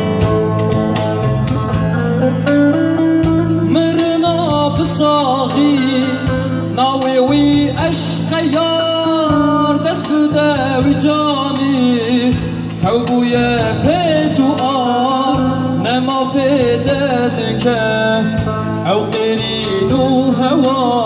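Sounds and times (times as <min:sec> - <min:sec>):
ornamented wavering lead melody: 0:00.0 - 0:07.6
plucked string accompaniment: 0:00.0 - 0:21.0.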